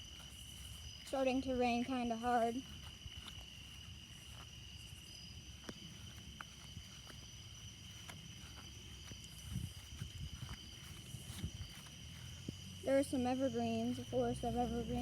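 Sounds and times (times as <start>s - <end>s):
crickets chirping: 0.0s - 15.0s
soft low thuds: 2.6s - 12.9s.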